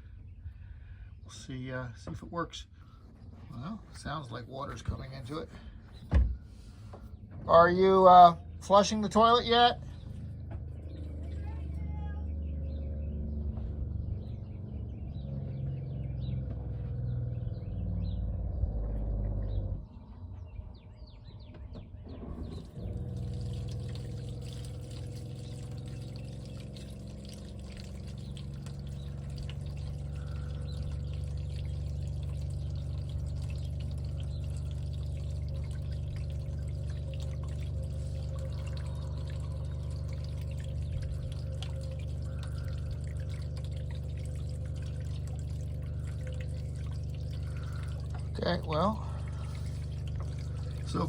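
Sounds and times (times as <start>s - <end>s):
water pouring into tank: 22.6s - 51.0s.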